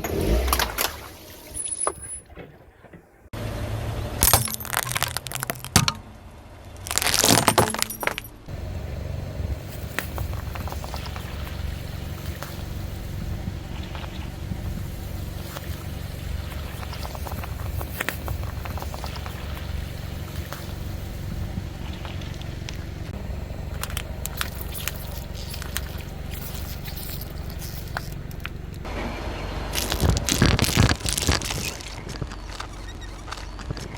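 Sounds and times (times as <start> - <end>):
car engine running: 0.0 - 33.9
small cracks and clicks: 4.2 - 6.0, 6.8 - 8.3, 23.7 - 28.9, 29.8 - 33.9
tyre crushing brittle objects: 4.2 - 6.1, 6.7 - 8.3, 23.8 - 28.6, 29.7 - 33.9.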